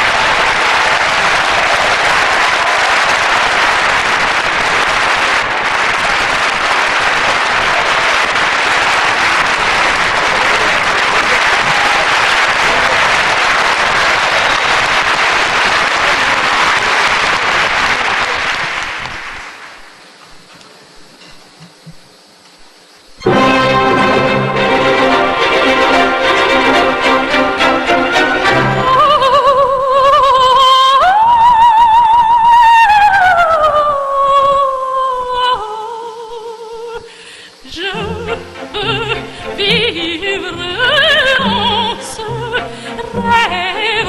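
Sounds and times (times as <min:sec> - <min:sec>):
audience applauding: 0:00.0 - 0:20.5, 0:23.2 - 0:30.5.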